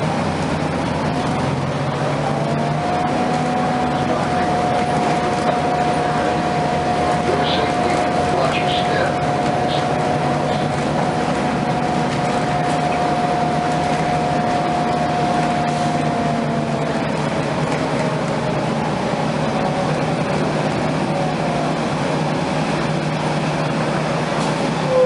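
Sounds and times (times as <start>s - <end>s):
bus engine and blowers droning: 0.0s - 25.0s.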